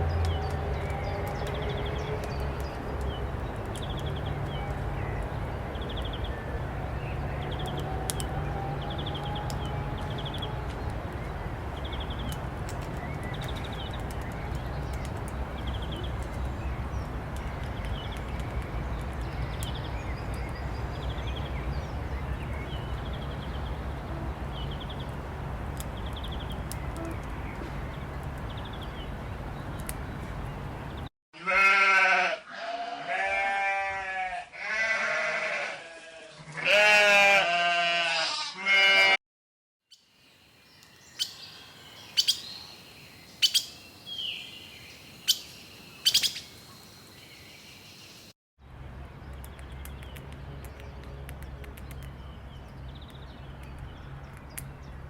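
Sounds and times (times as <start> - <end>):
faint clicks: 29.7 - 30.5
sheep bleating: 31.4 - 39.2.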